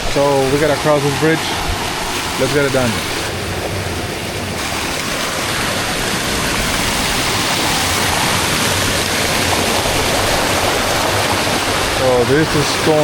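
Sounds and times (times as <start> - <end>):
stream and waterfall rushing: 0.0 - 13.0.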